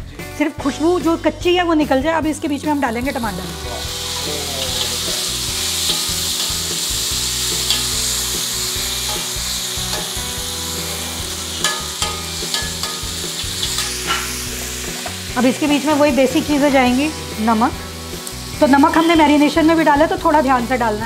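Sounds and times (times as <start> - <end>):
tomatoes sizzling in hot oil: 1.8 - 21.0
metal spoon scraping pan: 4.1 - 15.3.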